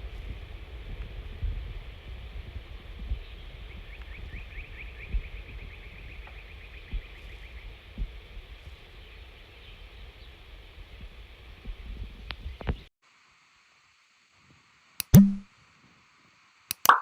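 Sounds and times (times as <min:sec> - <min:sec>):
wind rumble on microphone: 0:00.0 - 0:12.9.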